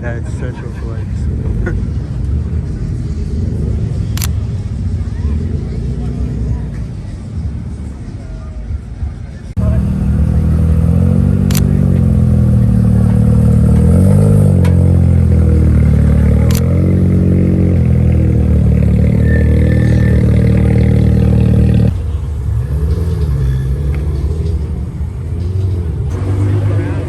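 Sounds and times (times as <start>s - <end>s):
car engine revving: 9.6s - 27.0s
sharp clicks: 11.5s - 11.7s, 16.4s - 16.7s.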